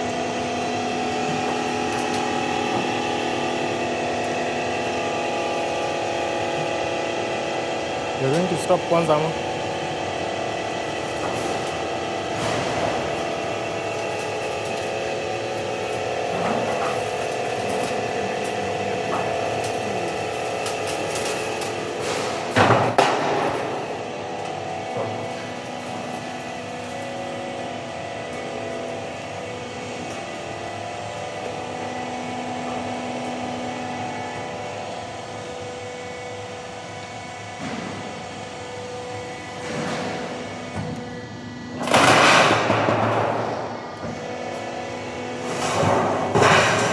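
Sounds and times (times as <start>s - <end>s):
roll forming machine humming: 0.0s - 46.9s.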